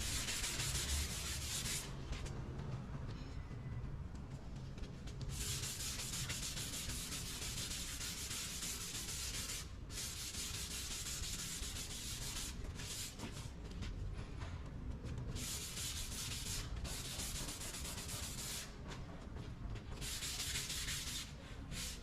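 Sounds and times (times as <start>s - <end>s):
sandpaper rubbing: 0.0s - 1.9s, 5.3s - 13.6s, 15.4s - 18.7s, 20.0s - 22.0s.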